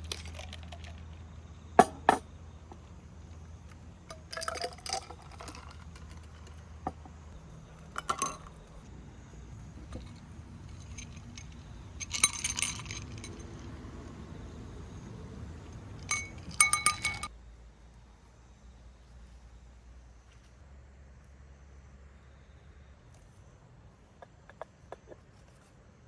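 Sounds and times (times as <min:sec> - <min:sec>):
glassware clinking: 0:01.8 - 0:02.2, 0:04.2 - 0:05.7, 0:07.9 - 0:08.6, 0:10.8 - 0:13.5, 0:16.0 - 0:17.3.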